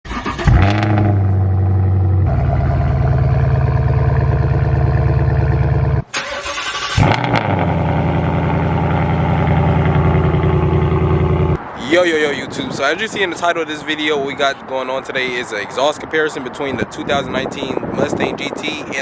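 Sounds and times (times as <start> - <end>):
engine starting: 0.0 - 1.0, 6.1 - 7.5
car exhaust idling: 0.5 - 6.1, 7.0 - 11.6.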